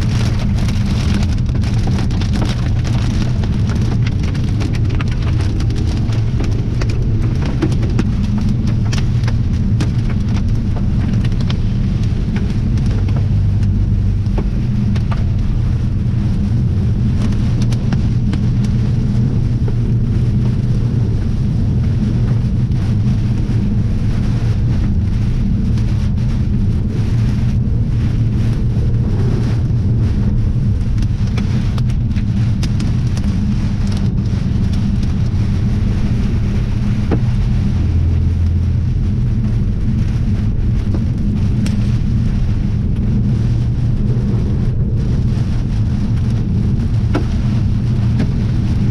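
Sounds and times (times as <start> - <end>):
drops or hail ticking: 0.0 - 23.6
heavy rain: 0.0 - 48.9
strong wind rumble: 0.0 - 48.9.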